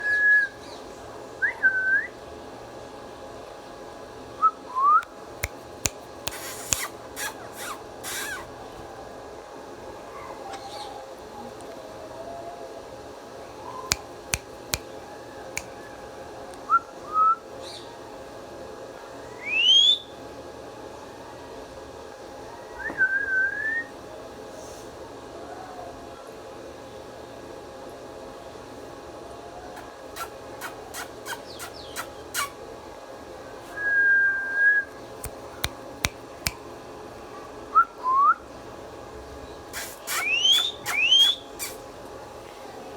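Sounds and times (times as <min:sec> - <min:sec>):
parrot clicks: 0:05.4 - 0:07.3, 0:13.9 - 0:14.9, 0:35.2 - 0:36.6
parrot harsh bursts: 0:06.3 - 0:08.5, 0:39.8 - 0:41.8
parrot whistled calls: 0:06.3 - 0:08.5, 0:19.4 - 0:20.1, 0:30.2 - 0:32.6, 0:39.8 - 0:41.8.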